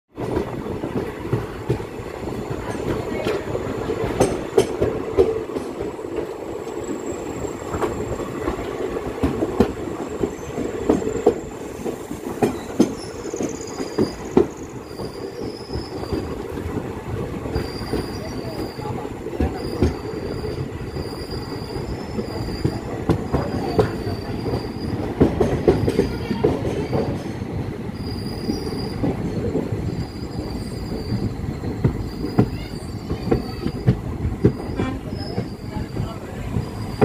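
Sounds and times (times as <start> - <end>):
train rumble: 0.1 - 37.0
train wheels clattering over joints: 0.2 - 37.0
high wheel squeal: 10.0 - 16.3, 17.5 - 25.1, 25.8 - 37.0.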